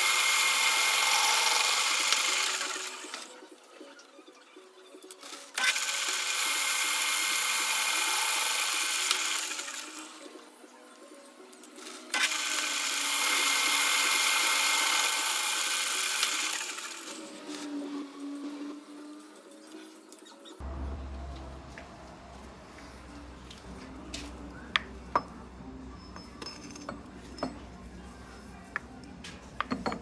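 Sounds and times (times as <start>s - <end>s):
power tool running: 0.0s - 3.4s, 5.2s - 10.4s, 11.8s - 19.0s.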